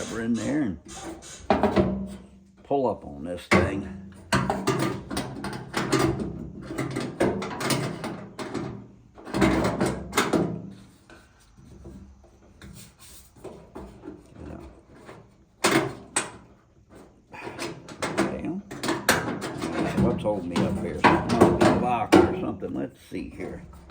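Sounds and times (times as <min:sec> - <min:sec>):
metal clattering and scraping: 0:00.0 - 0:02.6, 0:03.4 - 0:23.9
metal clicks and knocks: 0:03.5 - 0:10.7, 0:14.3 - 0:22.7.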